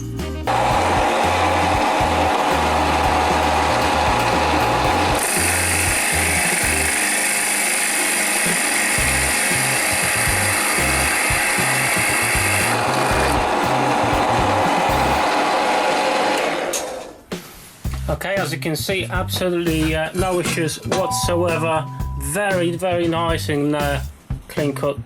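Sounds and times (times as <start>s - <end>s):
drill bit cutting into wood: 0.5s - 17.0s
drill motor running: 0.5s - 17.0s.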